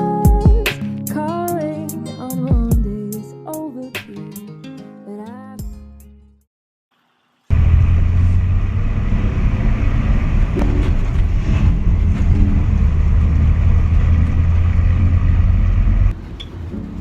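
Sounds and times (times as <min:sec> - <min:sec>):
vehicle low rumble: 0:07.5 - 0:17.0.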